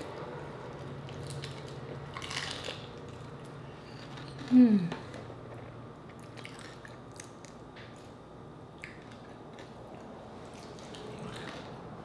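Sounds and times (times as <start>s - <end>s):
chewing fried chicken: 0.0s - 3.6s, 8.8s - 11.9s.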